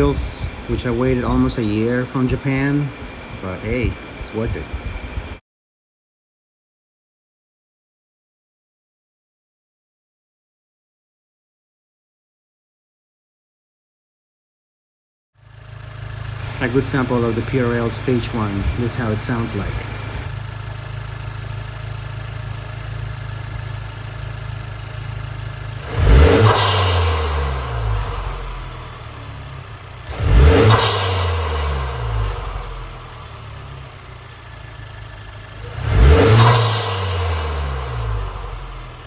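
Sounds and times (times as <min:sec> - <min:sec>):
car engine idling and revving: 0:15.4 - 0:39.0.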